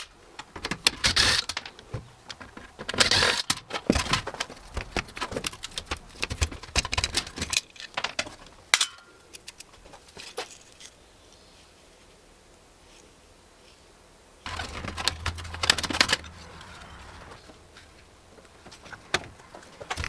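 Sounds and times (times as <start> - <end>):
computer parts clicking and clinking: 14.5 - 20.0.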